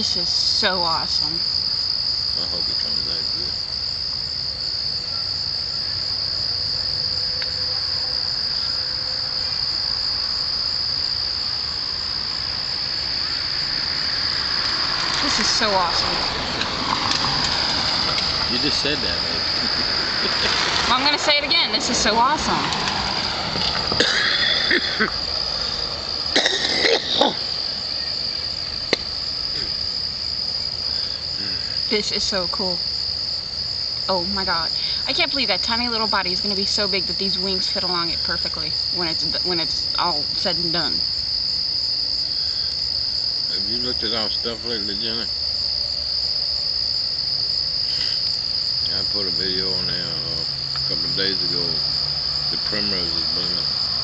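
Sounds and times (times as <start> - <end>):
night insects trilling: 0.0 - 54.0.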